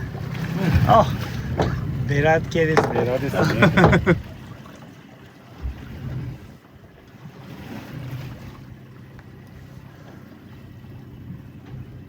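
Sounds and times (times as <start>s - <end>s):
wind buffeting microphone: 0.0s - 4.6s
sea noise: 0.0s - 12.0s.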